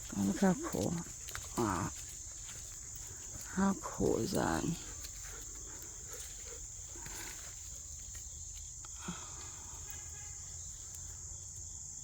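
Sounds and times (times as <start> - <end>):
insects singing: 0.0 - 12.0.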